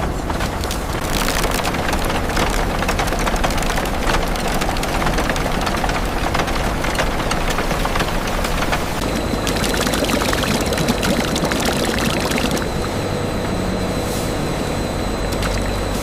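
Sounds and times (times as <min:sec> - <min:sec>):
heavy machinery engine rumble: 0:00.0 - 0:16.0
crackling and snapping: 0:00.2 - 0:12.9.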